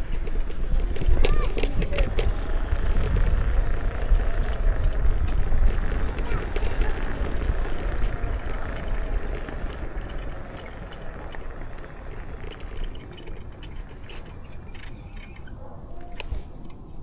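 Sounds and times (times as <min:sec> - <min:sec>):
scooter tyre and road noise: 0:00.0 - 0:17.0
wind rumbling on microphone: 0:00.0 - 0:17.0
light rattling clicks: 0:04.0 - 0:17.0.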